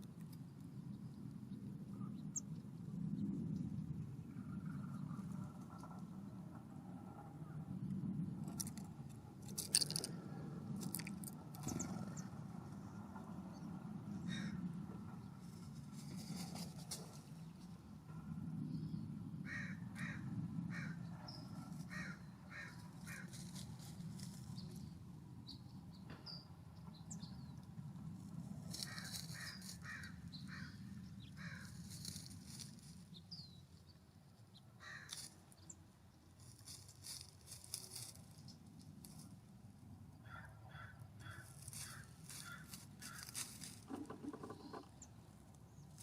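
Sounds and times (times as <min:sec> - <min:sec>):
small songbirds chirping: 0:00.2 - 0:06.5, 0:10.9 - 0:16.4, 0:20.8 - 0:27.8, 0:28.7 - 0:38.7.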